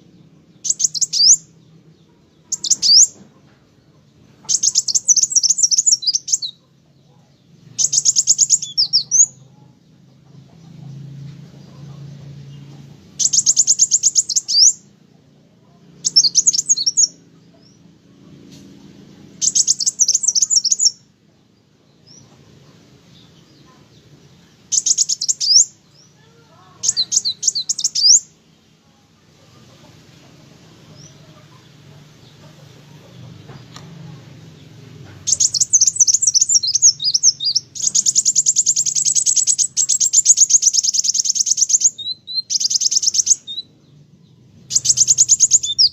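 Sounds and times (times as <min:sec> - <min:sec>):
bird twittering: 0:00.6 - 0:01.6, 0:02.4 - 0:03.2, 0:04.4 - 0:06.6, 0:07.7 - 0:09.5, 0:13.2 - 0:14.9, 0:16.0 - 0:17.8, 0:19.4 - 0:21.0, 0:24.7 - 0:26.0, 0:26.6 - 0:28.4, 0:35.2 - 0:43.8, 0:44.6 - 0:45.9.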